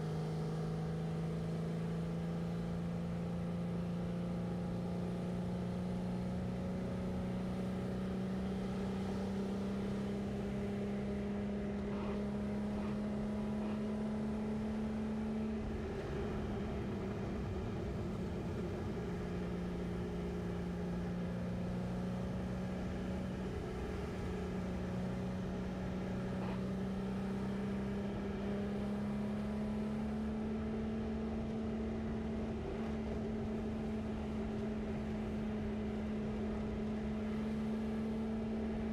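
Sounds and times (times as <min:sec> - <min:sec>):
low road rumble: 0:00.0 - 0:38.9.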